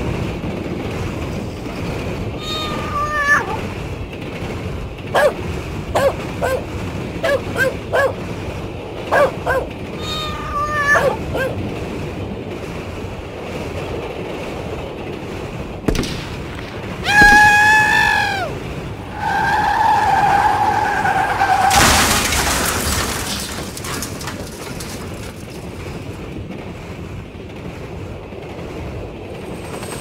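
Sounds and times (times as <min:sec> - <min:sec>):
kitten meowing: 0:02.4 - 0:03.6, 0:10.0 - 0:11.2
person screaming: 0:02.5 - 0:03.5, 0:17.0 - 0:18.5
puppy yips and whimpers: 0:05.2 - 0:05.4, 0:06.0 - 0:06.6, 0:07.2 - 0:08.2, 0:09.1 - 0:11.6.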